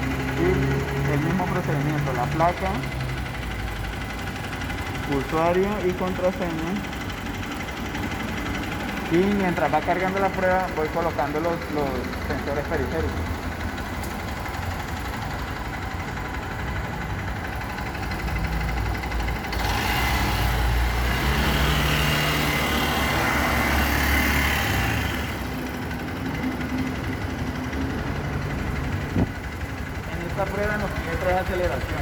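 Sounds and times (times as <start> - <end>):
motorcycle engine idling: 0.0 - 21.3, 21.9 - 32.0.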